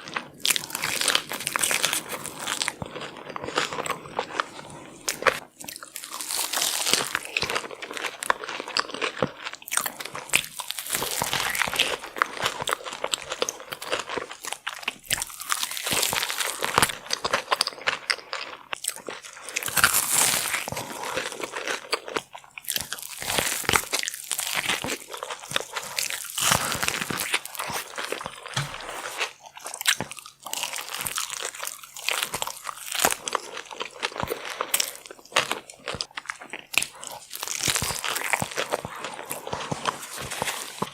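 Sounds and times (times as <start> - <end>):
person crunching and chewing seafood: 0.0 - 40.9.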